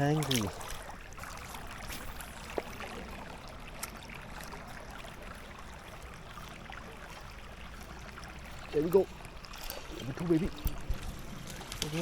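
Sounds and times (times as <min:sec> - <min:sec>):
river water running: 0:00.0 - 0:12.0.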